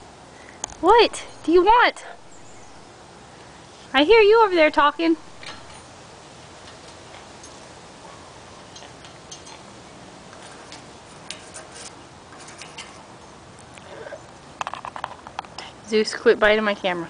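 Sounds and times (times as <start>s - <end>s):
steady low hiss: 0.0s - 17.0s
parrots clicking and tapping: 8.7s - 13.9s, 14.6s - 15.7s.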